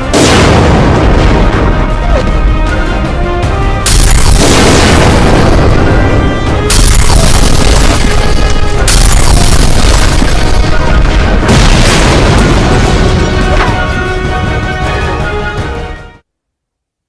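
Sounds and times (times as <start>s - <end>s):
loud booms and explosions: 0.0s - 15.7s
music: 0.0s - 16.3s.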